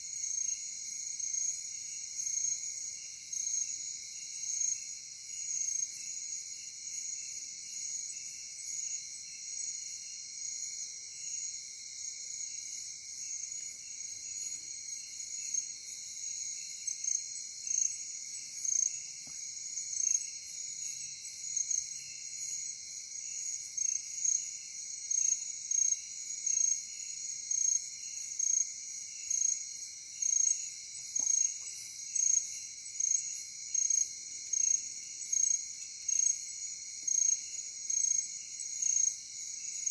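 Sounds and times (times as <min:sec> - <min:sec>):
cricket chirping: 0:00.0 - 0:39.9
crickets trilling: 0:10.6 - 0:39.9.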